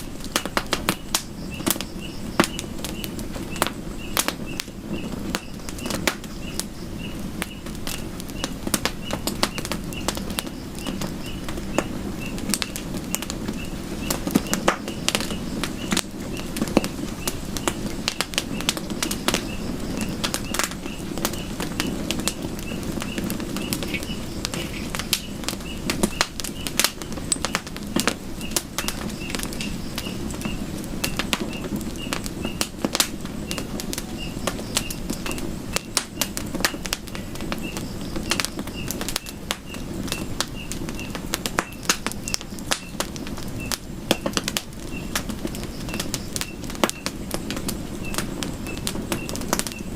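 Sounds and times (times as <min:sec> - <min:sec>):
low rush of flame: 0:00.0 - 0:49.9
wood crackling and popping: 0:00.0 - 0:49.9
faint high chirp: 0:19.4 - 0:27.6, 0:33.4 - 0:36.3, 0:48.0 - 0:49.9.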